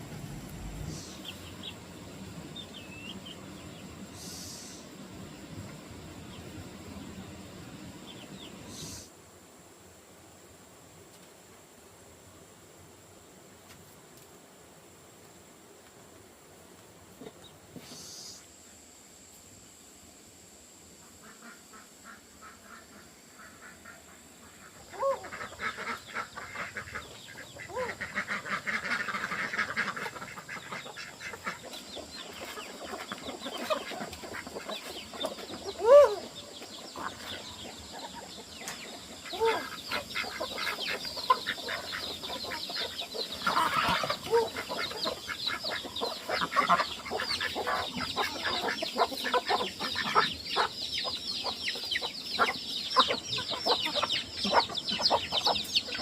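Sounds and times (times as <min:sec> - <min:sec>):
chickens clucking: 0:00.0 - 0:09.1, 0:21.0 - 0:56.0.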